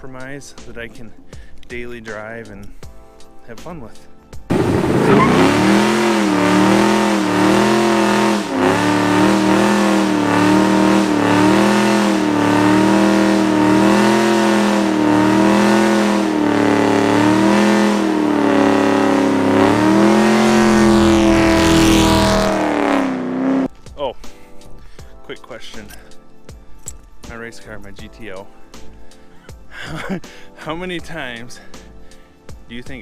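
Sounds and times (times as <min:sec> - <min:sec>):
car engine idling lumpy: 0:04.5 - 0:22.2.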